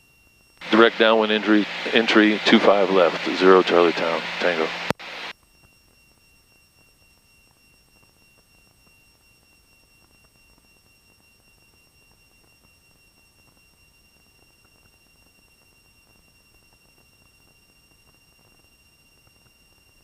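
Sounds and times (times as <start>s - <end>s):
high-pitched electronic whine: 0.3s - 20.0s.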